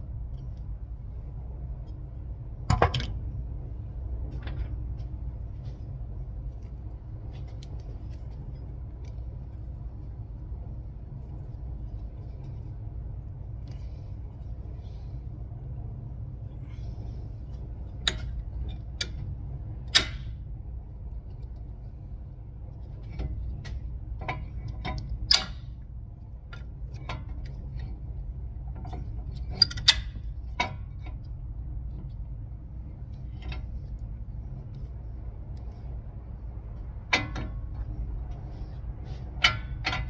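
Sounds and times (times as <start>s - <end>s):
steady low rumble: 0.0s - 40.0s
metal tools clicking and knocking: 29.5s - 30.2s.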